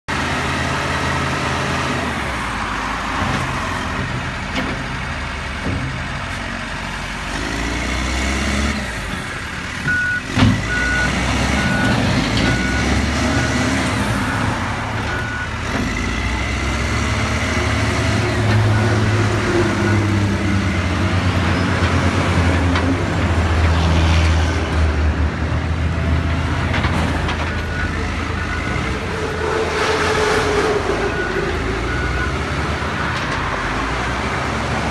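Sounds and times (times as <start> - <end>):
wheel loader diesel engine: 0.1 - 34.9
reversing alarm beeps: 9.9 - 15.6, 31.1 - 33.2.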